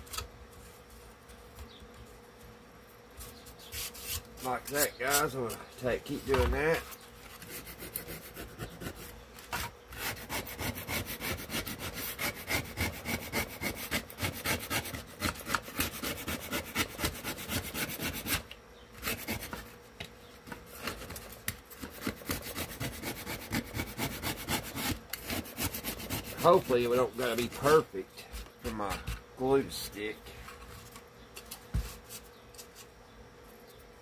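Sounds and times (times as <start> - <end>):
hand scraping a wooden board: 3.2 - 19.8, 20.5 - 29.2.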